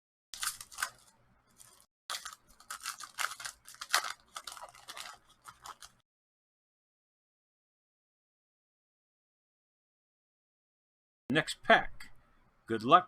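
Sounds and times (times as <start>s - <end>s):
foil wrapper crinkling and tearing: 0.4s - 6.0s.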